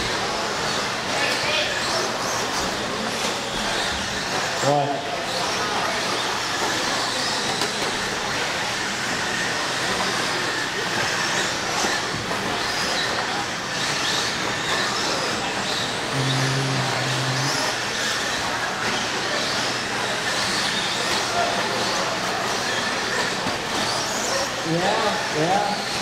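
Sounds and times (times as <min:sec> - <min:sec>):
rc truck motor whine: 0:00.0 - 0:26.0
short low hum: 0:16.1 - 0:17.8.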